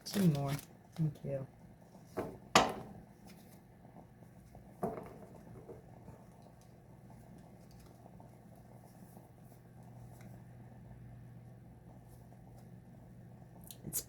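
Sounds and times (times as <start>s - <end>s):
handling of cards: 0.0s - 1.1s
low steady hum: 0.0s - 14.0s.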